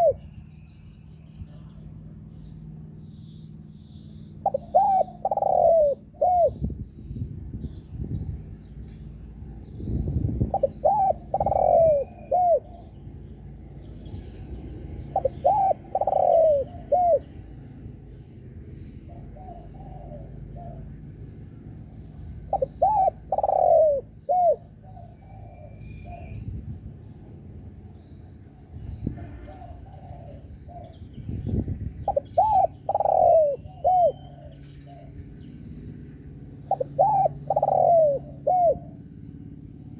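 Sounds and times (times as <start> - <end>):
dove cooing: 0.0 - 0.2, 4.3 - 6.7, 10.4 - 13.0, 14.1 - 17.4, 18.7 - 21.1, 22.4 - 26.4, 29.2 - 31.0, 32.0 - 35.2, 36.6 - 39.2.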